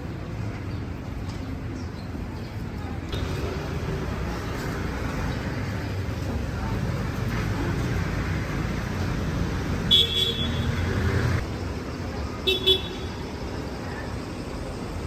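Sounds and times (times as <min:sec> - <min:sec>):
street traffic engines: 0:00.0 - 0:15.0
vehicle horn tooting: 0:09.9 - 0:10.9, 0:12.5 - 0:13.1.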